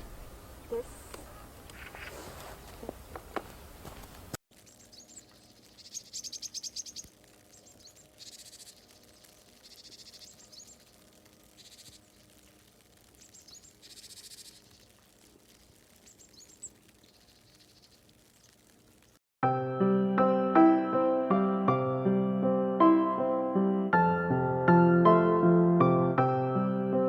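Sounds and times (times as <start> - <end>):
small birds chirping and trilling: 4.5 - 19.2.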